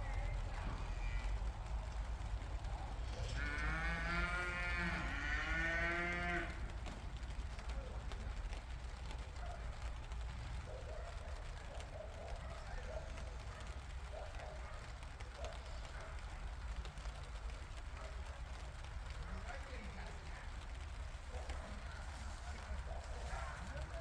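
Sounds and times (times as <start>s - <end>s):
cow mooing: 3.3s - 6.6s.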